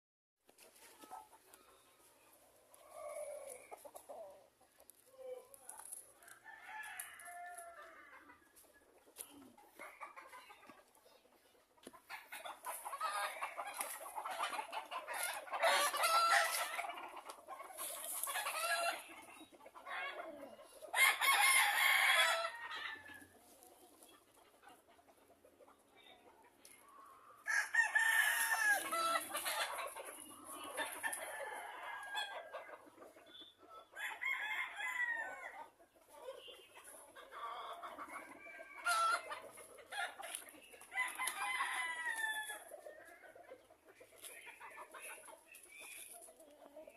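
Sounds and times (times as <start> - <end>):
chickens clucking: 0.5 - 46.9
roosters crowing: 6.2 - 8.4, 12.1 - 19.2, 19.8 - 23.3, 27.4 - 32.7, 34.0 - 35.7, 37.4 - 43.3.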